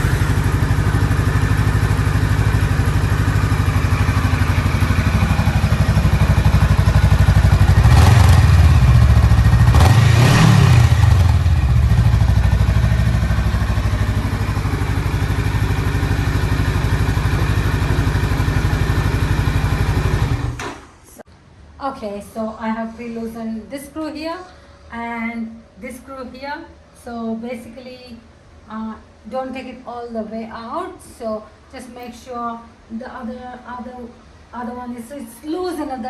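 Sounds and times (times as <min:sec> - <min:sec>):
motorcycle engine idling: 0:00.0 - 0:20.6.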